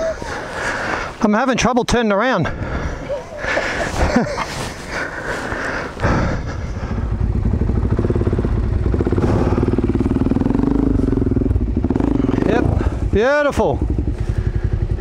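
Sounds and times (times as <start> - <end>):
motorcycle engine at low revs: 3.6 - 15.0.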